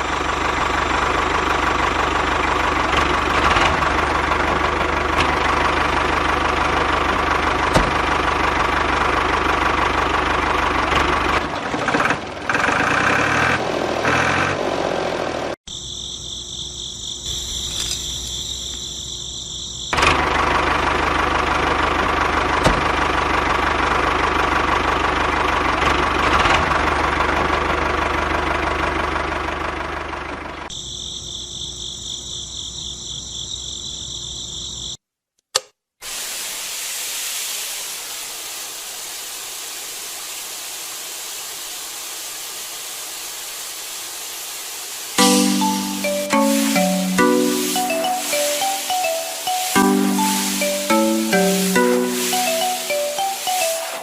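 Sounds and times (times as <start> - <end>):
steady hiss: 36.0 - 54.0.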